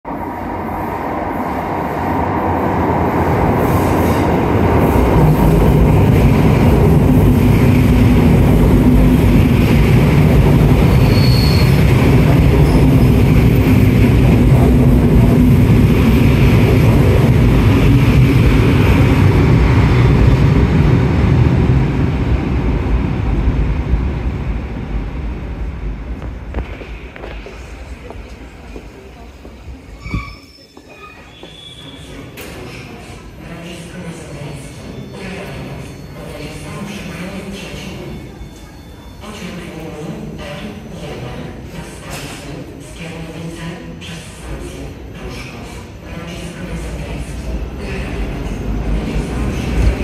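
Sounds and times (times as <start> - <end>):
train rumble echoing: 0.1 - 30.4, 31.3 - 50.0
high wheel squeal: 10.9 - 11.9, 30.0 - 32.0.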